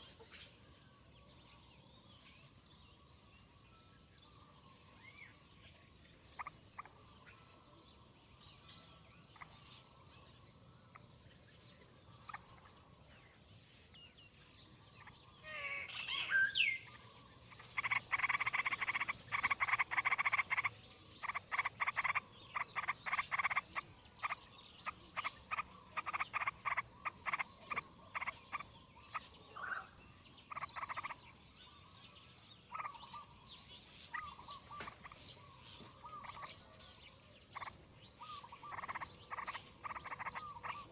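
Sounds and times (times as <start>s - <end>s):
rapid pulsed animal calls: 15.0s - 31.4s, 32.6s - 40.9s.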